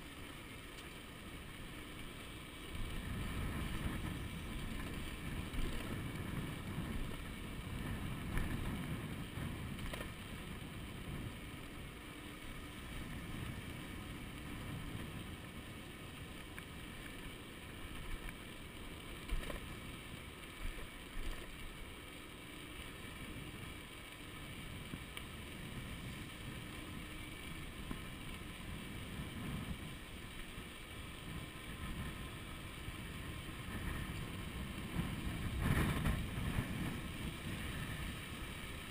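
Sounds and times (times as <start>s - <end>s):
hub motor whine: 0.0s - 38.9s
bicycle ride knocks: 0.6s - 18.6s
wind buffeting microphone: 2.8s - 11.9s, 24.7s - 30.2s, 31.2s - 38.9s.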